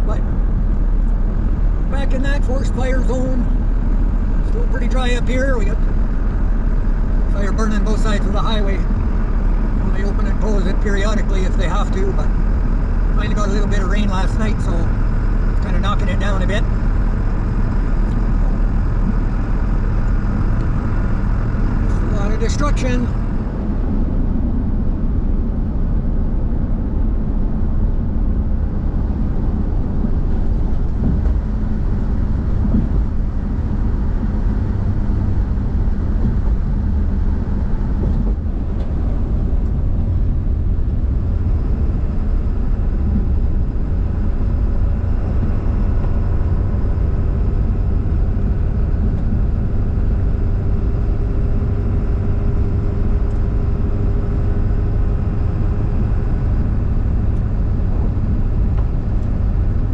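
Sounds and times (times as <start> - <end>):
road and engine noise in car: 0.0 - 59.9.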